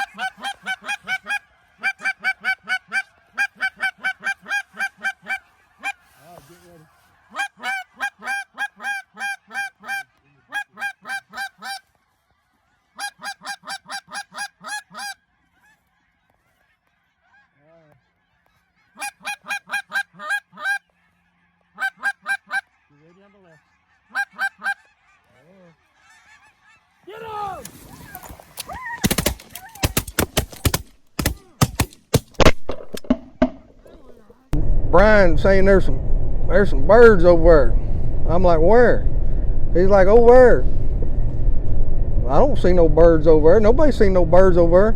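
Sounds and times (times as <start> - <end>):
goose honking: 0.0 - 11.9, 12.7 - 29.0.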